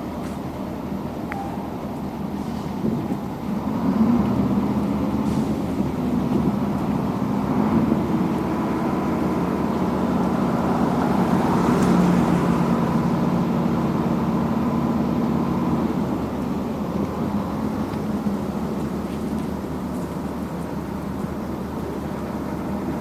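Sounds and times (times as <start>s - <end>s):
construction machinery engine running: 0.0s - 23.0s.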